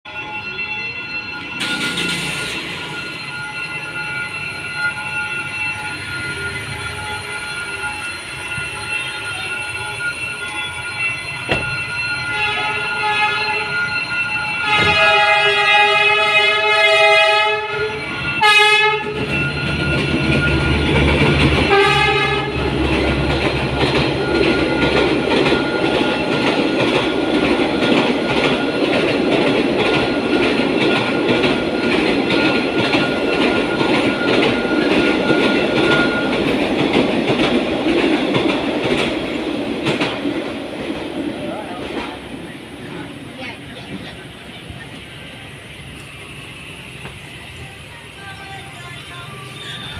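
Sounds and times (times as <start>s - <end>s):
train horn blasts: 12.2s - 14.0s, 14.6s - 19.8s, 21.6s - 22.8s.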